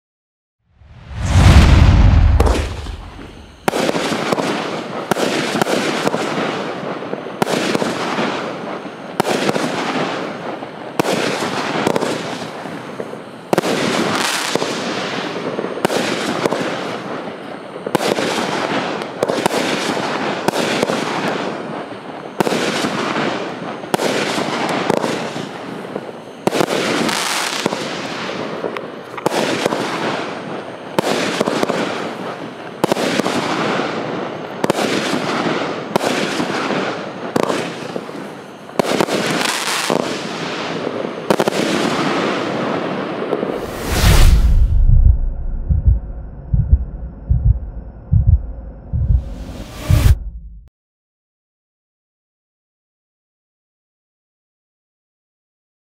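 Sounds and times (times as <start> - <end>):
loud firework boom: 0.8 - 3.8, 43.6 - 50.7
fireworks hissing: 0.9 - 4.0
firework shots banging: 1.0 - 4.5.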